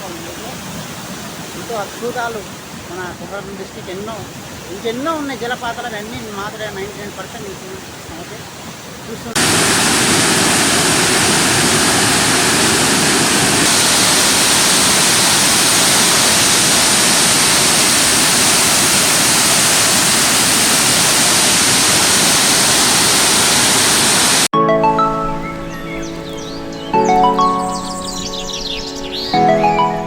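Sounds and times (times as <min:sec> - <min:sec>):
waterfall rushing: 0:00.0 - 0:30.0
music: 0:24.6 - 0:30.0.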